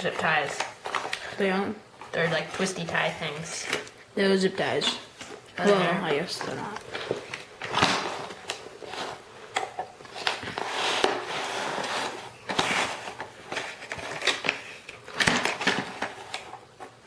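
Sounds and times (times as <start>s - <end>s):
packaging rustling: 4.8s - 17.0s.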